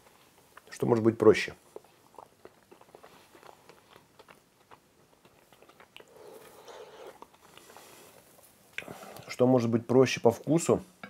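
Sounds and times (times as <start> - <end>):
person chewing with wet smacks: 0.0 - 0.9, 1.6 - 8.9.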